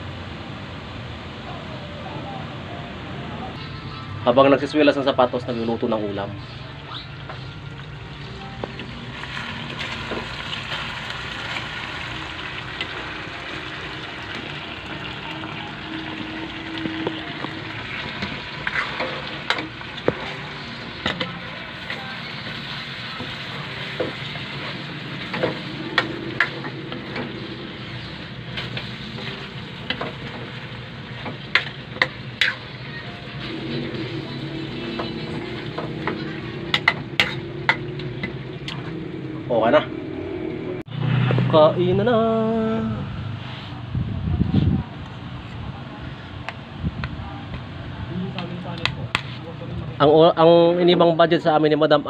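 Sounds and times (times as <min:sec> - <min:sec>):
meat sizzling in a wok: 0:09.1 - 0:38.4
spatula clicking and scraping pan: 0:18.1 - 0:20.4, 0:31.2 - 0:32.7, 0:35.8 - 0:38.8.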